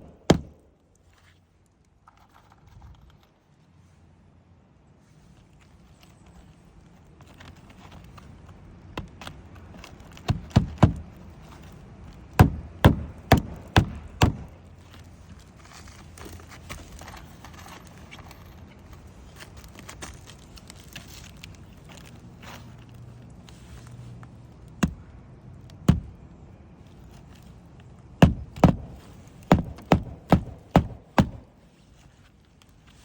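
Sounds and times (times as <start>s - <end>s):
hammer blows on a roof: 0.0s - 0.6s, 10.2s - 11.2s, 12.4s - 14.6s, 24.8s - 25.0s, 25.8s - 26.2s, 28.2s - 31.6s
shuffling: 14.5s - 24.6s, 28.8s - 33.0s.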